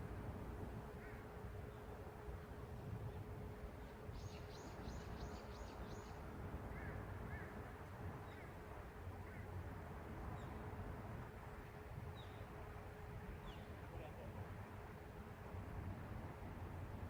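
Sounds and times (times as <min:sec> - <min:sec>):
low city hum: 0:00.0 - 0:17.0.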